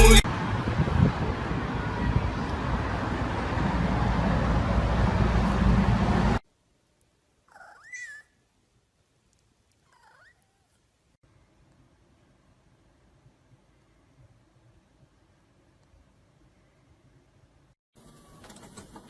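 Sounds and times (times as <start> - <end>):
loud dense sound: 0.0 - 0.3
cat meowing: 9.9 - 10.8.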